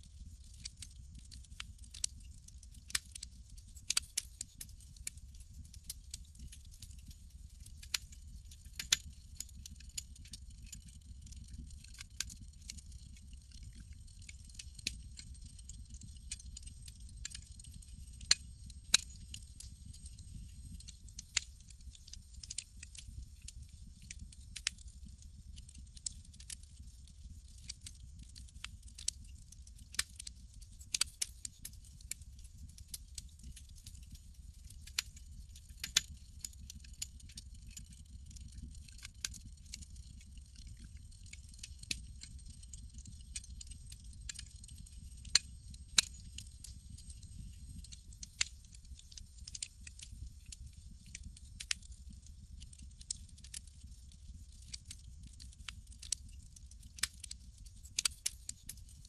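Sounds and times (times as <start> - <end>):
low rumble of fire: 0.0 - 59.0
campfire crackling: 0.5 - 2.1, 2.7 - 4.2, 51.2 - 51.9, 54.6 - 56.1, 57.0 - 57.4.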